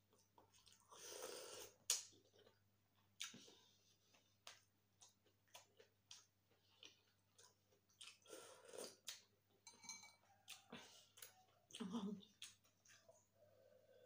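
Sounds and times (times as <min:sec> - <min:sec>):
chewing mouth clicks and smacks: 0:03.2 - 0:03.6, 0:04.4 - 0:09.3, 0:10.5 - 0:13.2.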